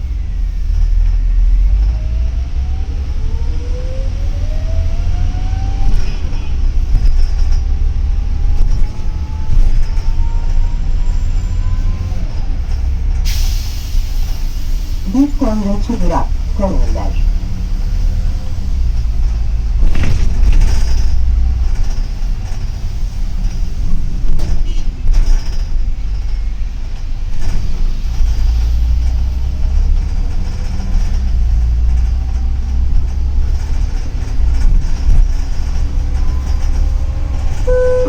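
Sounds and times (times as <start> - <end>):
bus engine and road rumble: 0.0 - 38.0
bus body knocks and rattles: 18.9 - 37.6.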